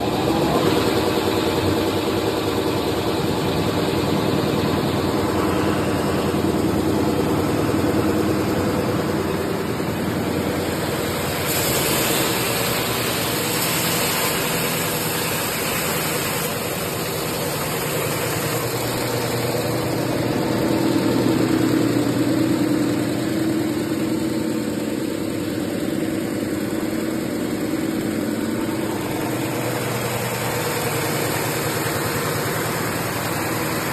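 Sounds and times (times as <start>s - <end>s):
sanding machine humming: 0.0s - 33.9s
sanding hiss: 0.1s - 21.8s.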